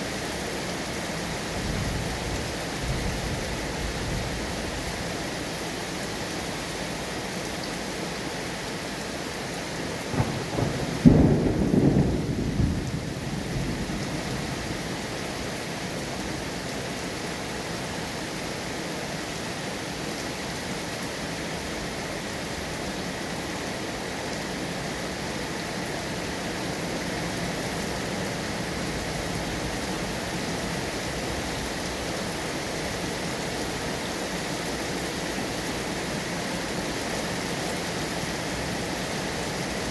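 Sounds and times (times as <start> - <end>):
heavy rain: 0.0 - 39.9
thunder clap rumbling: 10.1 - 14.5.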